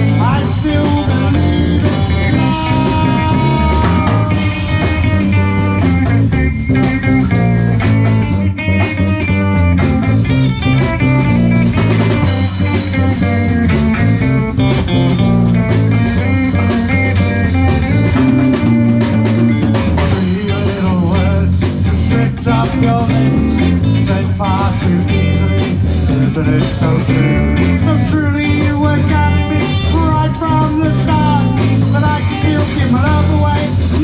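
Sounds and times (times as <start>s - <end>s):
bass guitar: 0.0s - 34.0s
drum kit: 0.0s - 34.0s
electric guitar run: 0.0s - 34.0s.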